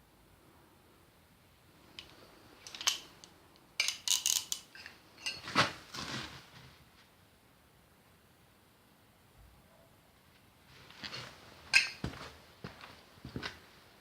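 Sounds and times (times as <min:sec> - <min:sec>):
metal tools clinking: 0:03.8 - 0:05.5, 0:11.7 - 0:12.1.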